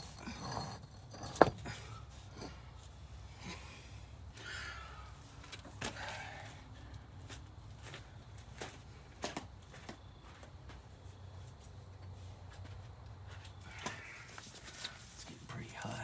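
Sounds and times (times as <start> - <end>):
hard objects knocking and clicking: 0.0 - 2.5.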